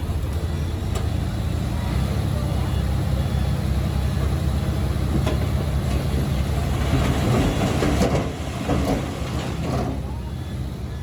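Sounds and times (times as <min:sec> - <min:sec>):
bulldozer diesel engine running: 0:00.0 - 0:11.0
steel tracks clanking: 0:04.2 - 0:10.8.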